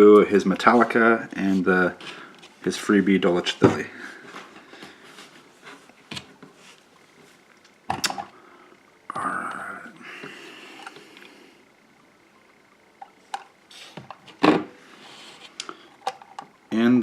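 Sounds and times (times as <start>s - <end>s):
scraping or rustling: 15.0s - 15.6s.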